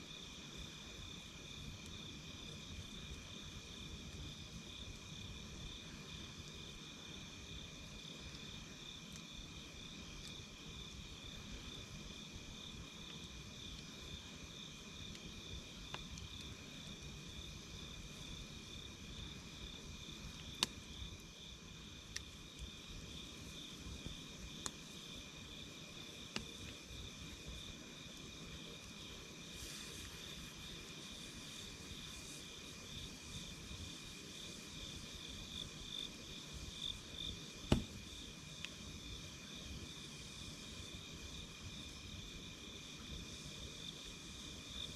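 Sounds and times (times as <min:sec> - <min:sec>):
campfire burning: 0:00.0 - 0:44.9
crickets trilling: 0:00.0 - 0:44.9
campfire pops: 0:13.0 - 0:17.4, 0:20.1 - 0:25.2, 0:26.2 - 0:27.6, 0:37.4 - 0:38.8.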